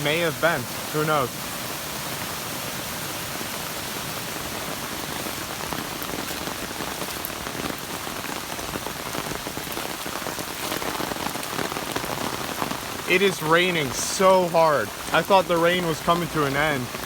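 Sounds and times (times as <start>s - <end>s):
heavy rain: 0.0s - 17.0s
raindrop hits: 4.4s - 17.0s.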